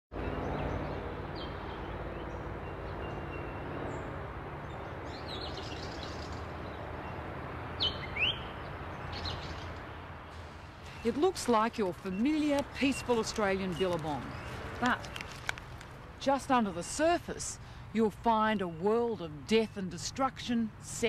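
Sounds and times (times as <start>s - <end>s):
loud sweeping bird calls: 0.2s - 15.4s.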